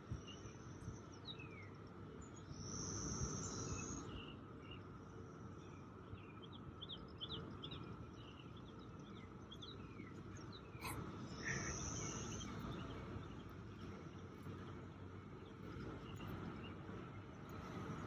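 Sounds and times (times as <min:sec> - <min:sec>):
cicadas droning: 0:10.8 - 0:12.5.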